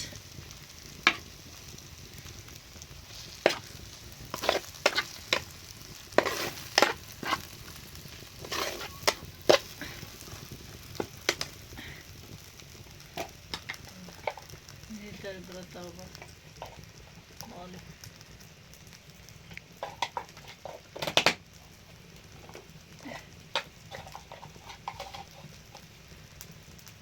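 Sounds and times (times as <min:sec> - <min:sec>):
utensil scraping in a pan: 0:00.0 - 0:14.9, 0:16.1 - 0:17.0, 0:19.8 - 0:21.3, 0:21.9 - 0:26.1
faint steady hiss: 0:00.0 - 0:27.0.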